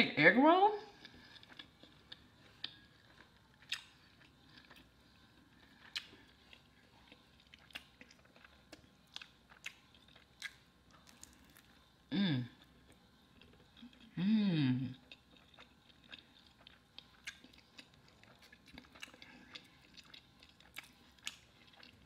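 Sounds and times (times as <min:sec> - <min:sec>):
chewing with crunches: 0:00.9 - 0:14.2, 0:14.8 - 0:22.0
person humming: 0:12.1 - 0:12.5, 0:14.2 - 0:14.9.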